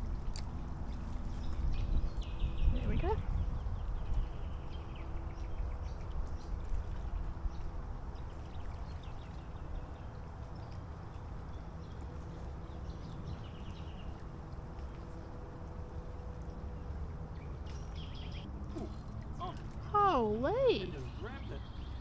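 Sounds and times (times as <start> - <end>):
steady low rumble: 0.0 - 22.0
birds chirping: 1.4 - 10.8, 16.6 - 22.0.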